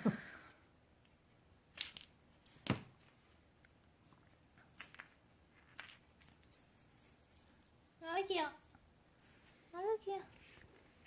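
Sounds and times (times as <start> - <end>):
jingle bell tinkling: 0.0 - 0.8, 1.5 - 3.4, 4.6 - 9.7.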